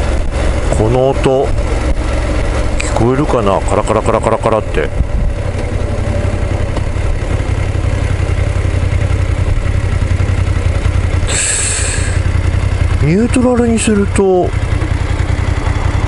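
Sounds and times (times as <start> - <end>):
engine tappet rattle: 0.0 - 16.0
motorcycle engine running: 0.0 - 16.0
brief hiss: 11.3 - 12.2.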